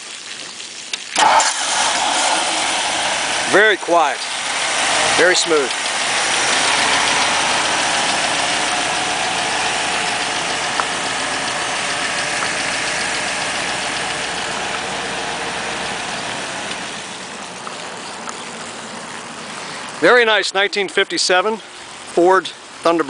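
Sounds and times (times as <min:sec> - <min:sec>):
car engine idling: 0:01.2 - 0:20.3.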